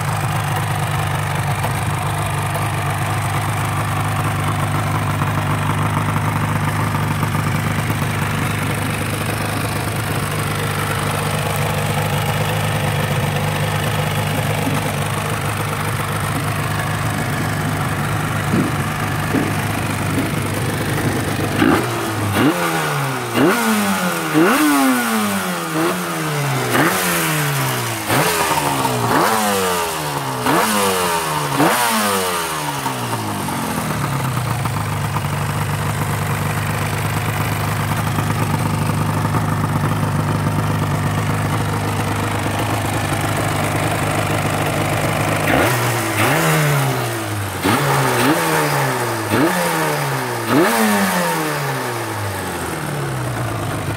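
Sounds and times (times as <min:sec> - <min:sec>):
motorcycle engine idling: 0:00.0 - 0:53.9
motorcycle engine throttle blips: 0:00.2 - 0:23.8.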